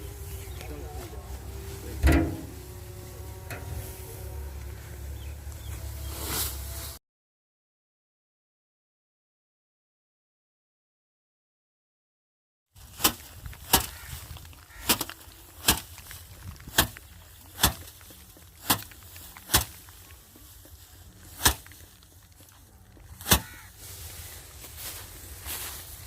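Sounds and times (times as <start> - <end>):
straw rustling: 0.0 - 7.0, 12.8 - 26.0
rice bundles beaten on surface: 12.8 - 23.9.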